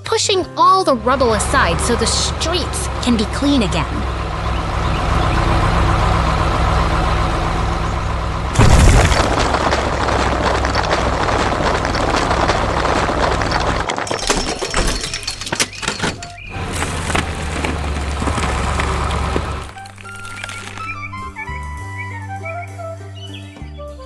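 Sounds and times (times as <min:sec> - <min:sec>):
bulldozer engine running: 0:00.0 - 0:22.0
rubble crackling: 0:08.4 - 0:21.4
loud crash: 0:08.5 - 0:15.5.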